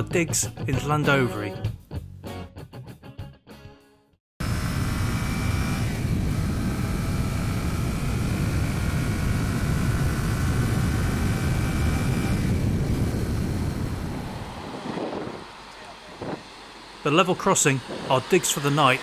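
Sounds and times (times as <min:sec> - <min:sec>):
motorcycle engine running: 0:04.4 - 0:16.6
wind rushing on microphone: 0:04.6 - 0:15.5, 0:16.1 - 0:16.5, 0:17.8 - 0:18.3.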